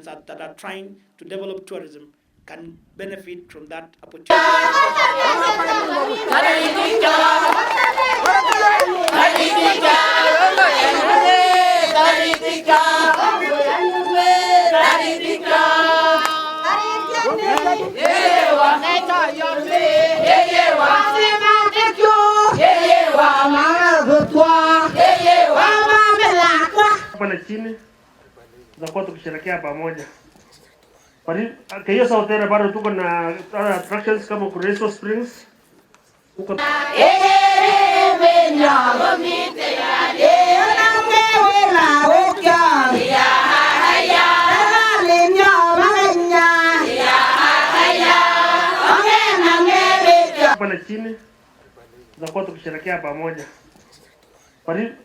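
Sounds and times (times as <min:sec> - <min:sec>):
high voices singing: 0:04.3 - 0:26.8, 0:36.6 - 0:50.6.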